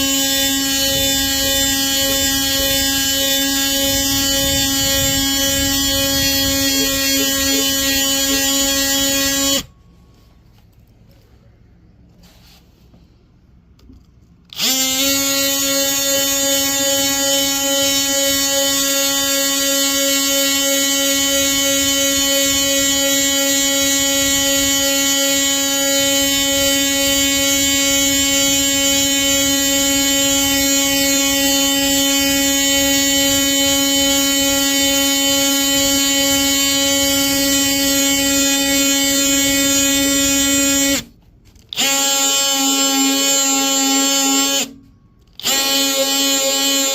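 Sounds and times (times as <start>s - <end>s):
oscillating sander buzzing: 0.0s - 9.7s, 14.5s - 41.1s, 41.7s - 46.9s.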